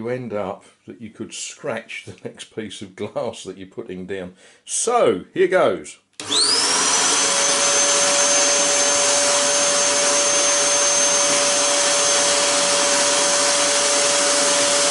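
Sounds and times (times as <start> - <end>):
vacuum cleaner motor whine: 6.2 - 14.9.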